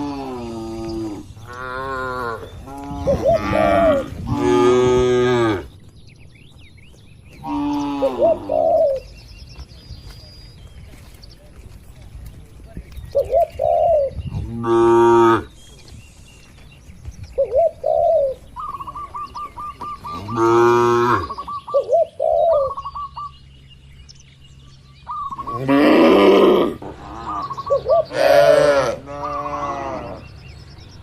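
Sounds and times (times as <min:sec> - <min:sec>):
cattle mooing: 0:00.0 - 0:05.7, 0:20.1 - 0:21.4, 0:25.4 - 0:30.2
birds chirping: 0:00.0 - 0:31.0.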